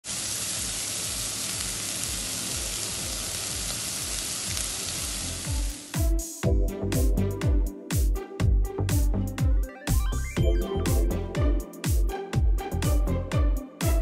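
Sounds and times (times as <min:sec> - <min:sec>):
meat and onion sizzling in pot: 0:00.0 - 0:06.1
electronic music with kick drum: 0:05.4 - 0:14.0.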